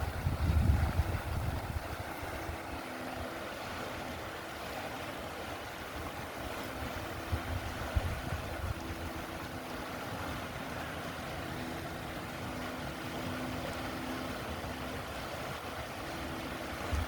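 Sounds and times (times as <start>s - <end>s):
wind on microphone: 0.0s - 3.6s, 5.6s - 10.4s, 12.9s - 17.0s
river water running: 0.0s - 17.0s.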